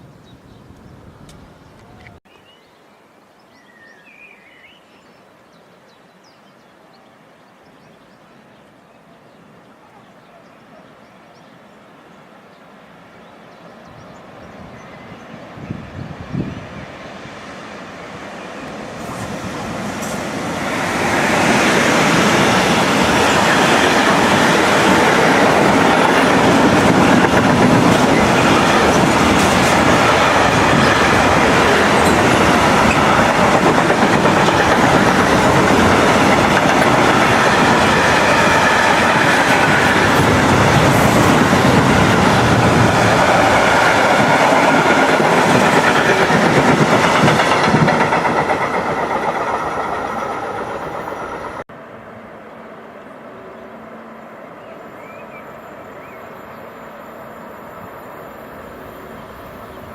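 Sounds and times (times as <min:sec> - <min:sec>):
train wheels rolling on rails: 0:17.0 - 0:51.6.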